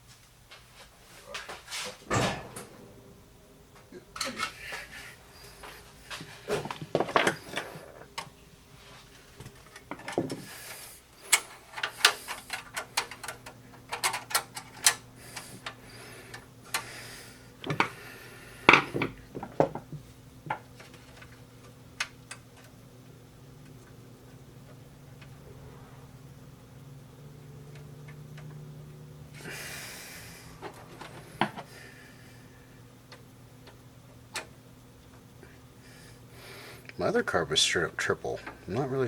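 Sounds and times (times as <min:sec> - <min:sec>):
clicks of metal and plastic parts: 0:11.3 - 0:16.9.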